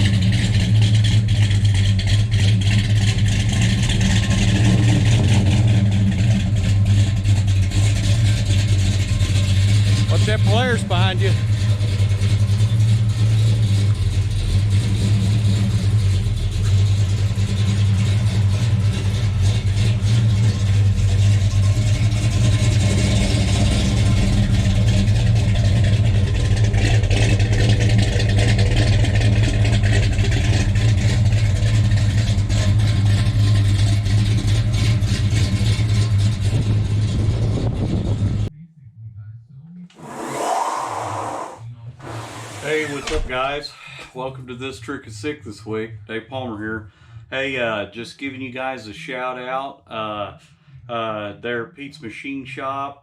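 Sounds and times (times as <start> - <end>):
car engine fast idle: 0.0 - 10.7, 11.4 - 36.6.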